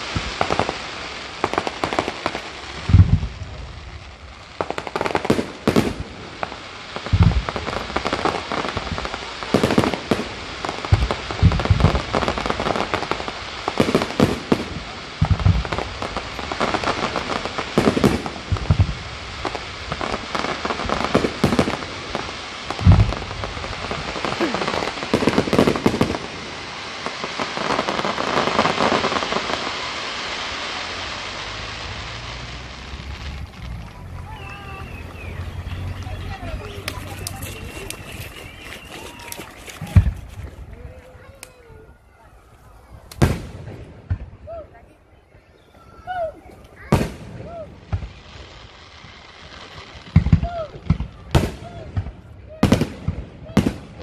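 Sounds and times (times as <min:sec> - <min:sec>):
sharp firework bangs: 0:00.0 - 0:03.7, 0:04.5 - 0:41.6, 0:43.0 - 0:44.4, 0:46.8 - 0:54.0
firework shells booming: 0:00.0 - 0:40.7, 0:43.0 - 0:44.4, 0:46.6 - 0:48.8, 0:49.4 - 0:54.0
crackling of falling sparks: 0:00.0 - 0:41.7.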